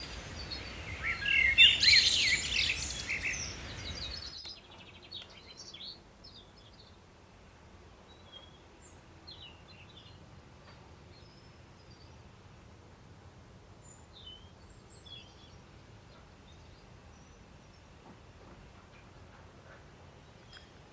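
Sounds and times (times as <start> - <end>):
birds chirping and whistling: 0.0 - 6.0
background hiss: 0.0 - 20.9.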